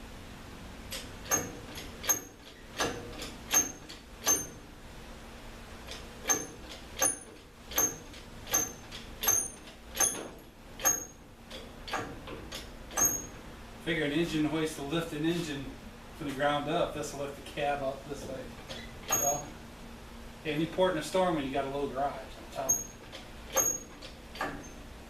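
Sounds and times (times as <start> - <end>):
faint steady hum: 0.0 - 25.0
sharp metallic clicks with ring: 0.9 - 4.6, 5.9 - 13.4, 18.7 - 19.5.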